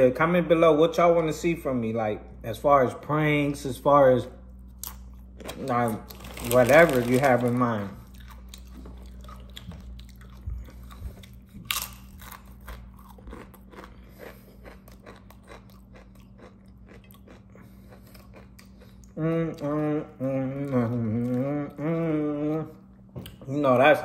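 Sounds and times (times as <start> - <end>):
chewing sandwich with crunches: 4.6 - 23.4.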